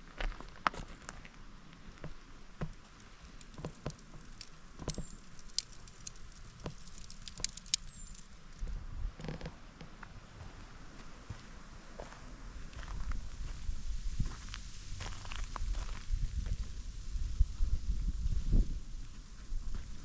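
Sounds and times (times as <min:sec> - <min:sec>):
twigs snapping underfoot: 0:03.2 - 0:08.8
footsteps crunching on forest path: 0:10.4 - 0:13.6, 0:14.2 - 0:16.7.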